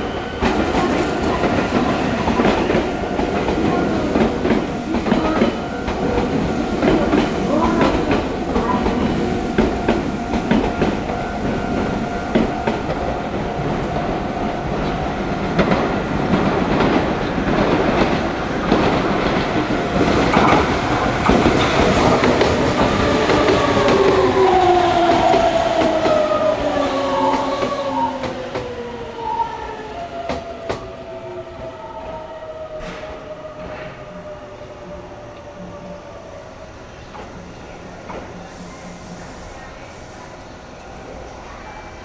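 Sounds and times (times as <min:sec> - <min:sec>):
train wheels clattering: 0:00.0 - 0:28.9
train motor whine: 0:00.0 - 0:30.9.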